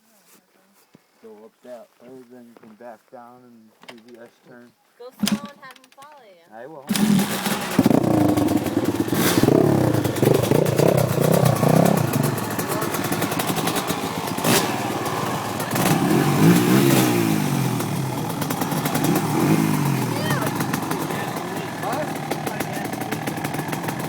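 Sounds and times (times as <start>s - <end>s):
sharp clicks: 5.2s - 6.3s
dirt bike engines revving: 6.9s - 24.0s.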